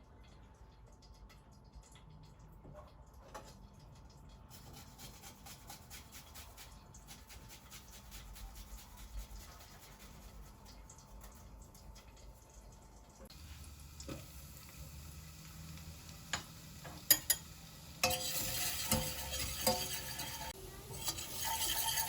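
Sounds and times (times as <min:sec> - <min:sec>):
small clicks and light crackle: 0:00.2 - 0:04.5.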